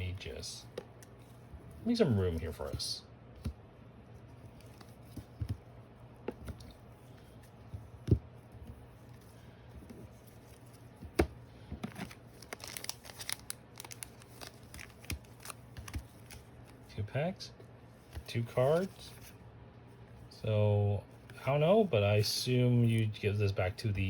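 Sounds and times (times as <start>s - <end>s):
card packs rustling and clicking: 10.3s - 16.8s.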